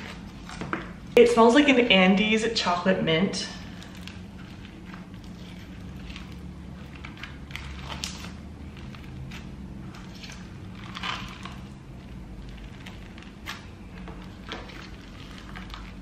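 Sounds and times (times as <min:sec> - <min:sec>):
slime beads crunching: 0:03.6 - 0:16.0.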